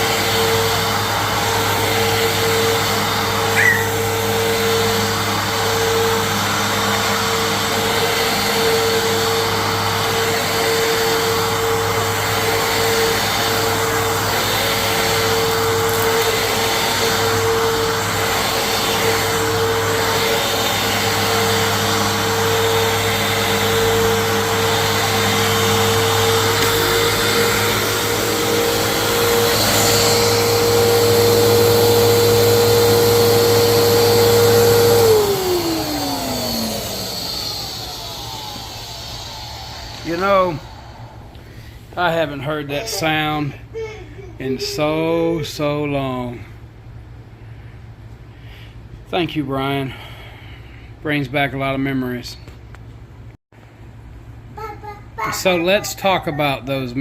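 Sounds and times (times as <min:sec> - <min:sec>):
vacuum cleaner motor whine: 0:00.0 - 0:43.5.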